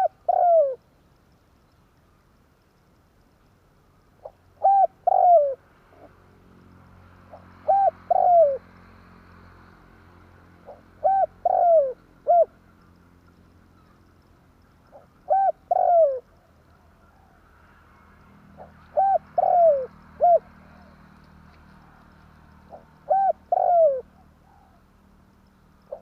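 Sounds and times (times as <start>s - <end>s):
dove cooing: 0.0s - 0.8s, 4.2s - 6.1s, 7.3s - 8.7s, 10.6s - 12.7s, 14.8s - 17.4s, 18.6s - 21.1s, 21.8s - 24.8s.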